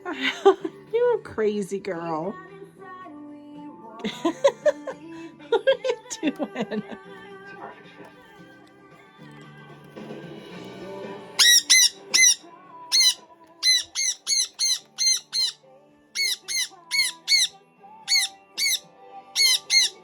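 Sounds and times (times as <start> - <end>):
pet bird squawking: 11.4 - 15.6, 16.2 - 17.5, 18.1 - 20.0.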